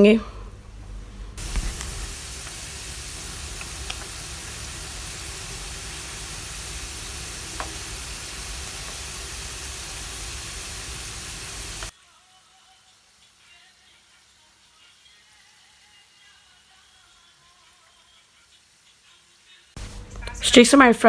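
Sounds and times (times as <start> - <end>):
faint oil pops: 1.4 - 11.9
potatoes sizzling in hot oil: 1.4 - 19.8.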